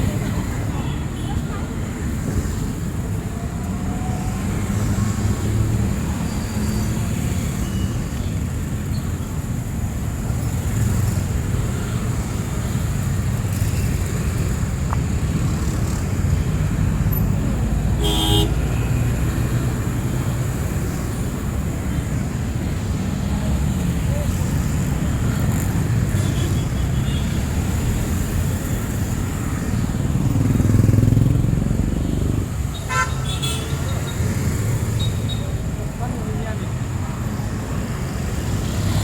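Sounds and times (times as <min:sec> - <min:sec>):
vehicle engines rumbling: 0:00.0 - 0:39.0
car horn honk: 0:18.0 - 0:18.6, 0:32.9 - 0:33.8.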